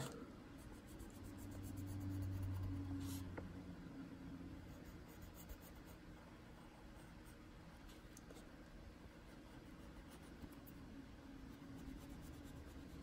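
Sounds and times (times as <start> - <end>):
coloured pencil scratching on paper: 0.0 - 3.3, 4.6 - 6.0, 9.2 - 13.0.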